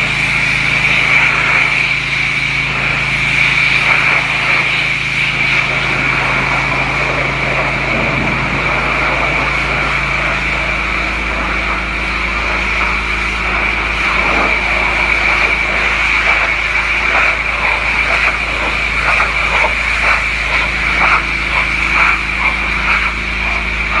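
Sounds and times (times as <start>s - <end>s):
water spattering on surface: 3.0s - 24.0s
low steady hum: 5.3s - 16.0s.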